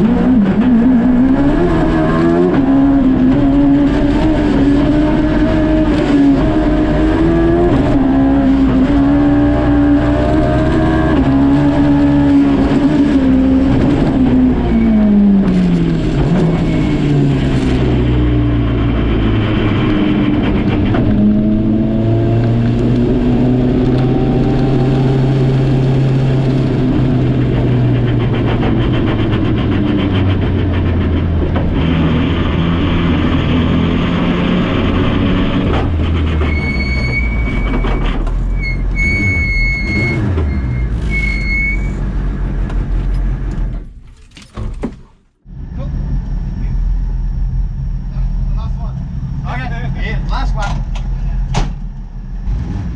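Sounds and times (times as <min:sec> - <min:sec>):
engine pulling under full throttle: 0:00.0 - 0:44.0, 0:45.4 - 0:52.9
high electronic beep: 0:36.5 - 0:42.0.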